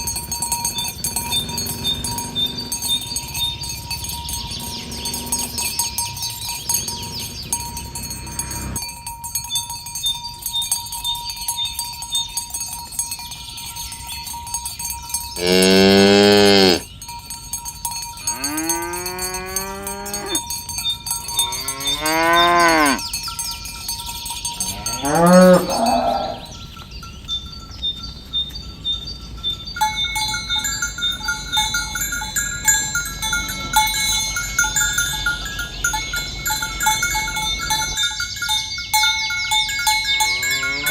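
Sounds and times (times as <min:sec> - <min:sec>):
bell-like ringing tones: 0:00.0 - 0:40.9
cattle mooing: 0:00.8 - 0:06.0, 0:06.7 - 0:08.8, 0:15.4 - 0:16.8, 0:18.2 - 0:20.4, 0:21.5 - 0:23.0, 0:24.7 - 0:26.6, 0:40.2 - 0:40.9.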